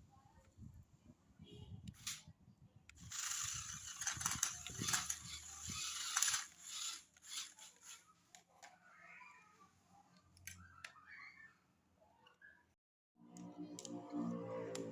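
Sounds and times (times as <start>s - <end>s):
toy car motor clicking rapidly: 3.0s - 8.0s.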